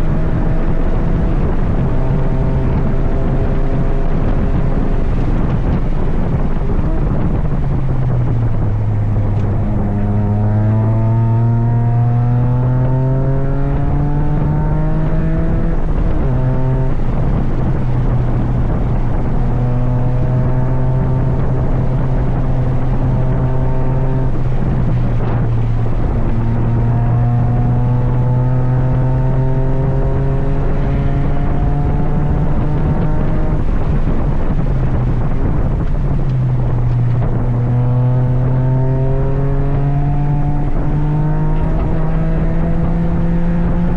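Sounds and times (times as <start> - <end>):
car engine accelerating hard: 0.0 - 43.9.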